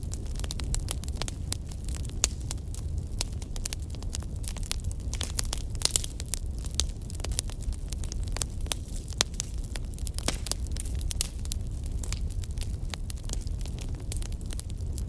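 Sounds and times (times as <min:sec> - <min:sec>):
campfire crackling: 0:00.0 - 0:15.0
low rumble of flames: 0:00.0 - 0:15.0.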